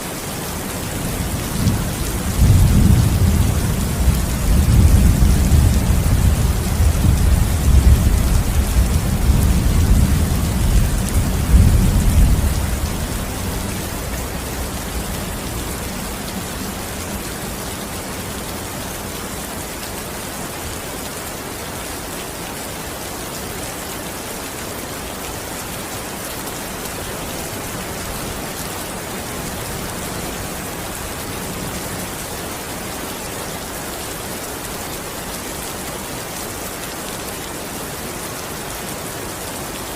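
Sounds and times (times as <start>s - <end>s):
rain falling: 0.0s - 39.9s
thunder rumbling: 1.2s - 16.9s.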